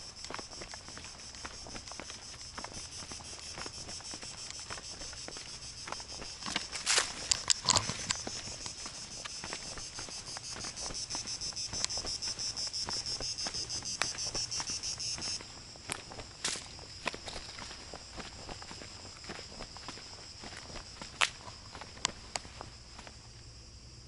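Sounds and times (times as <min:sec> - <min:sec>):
light footsteps: 0:00.0 - 0:23.4
insects chirring: 0:00.0 - 0:24.0.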